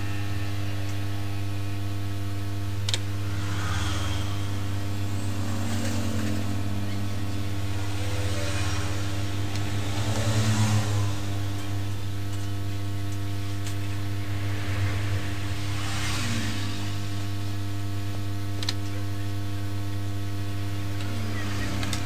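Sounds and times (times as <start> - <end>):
equipment whirring: 0.0 - 12.5
electrical hum: 0.0 - 22.0.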